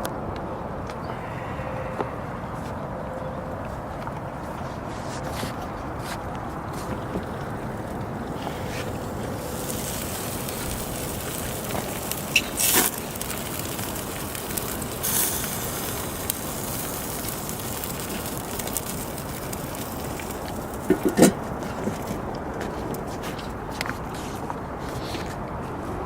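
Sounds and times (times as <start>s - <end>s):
grill flare-ups: 4.0s - 25.5s
chicken sizzling on a grill: 7.0s - 22.3s.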